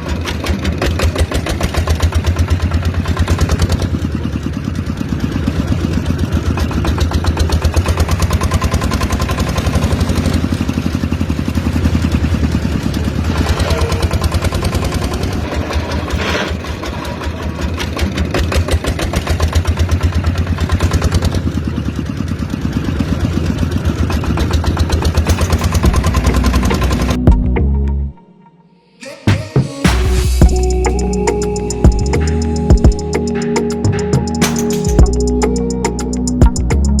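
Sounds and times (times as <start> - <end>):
small model tractor motor running: 0.0 - 27.2.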